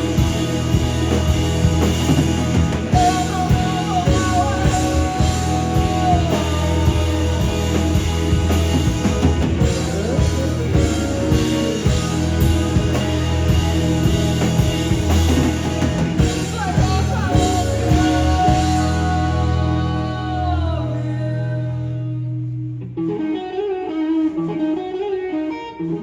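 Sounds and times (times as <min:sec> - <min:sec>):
drum kit hits: 0:00.0 - 0:19.2
rock band playing live: 0:00.0 - 0:26.0.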